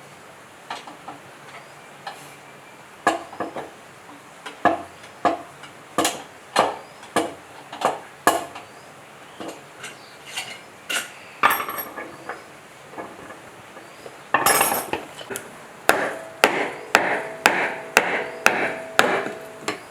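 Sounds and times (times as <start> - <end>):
metal tools clinking: 14.4 - 15.4.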